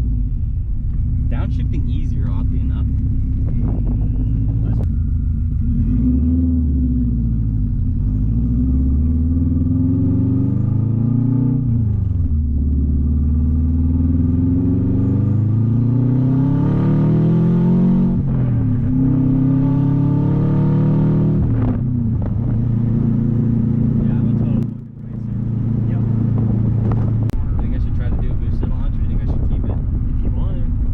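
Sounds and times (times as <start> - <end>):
loud car exhaust accelerating: 0.0 - 30.9.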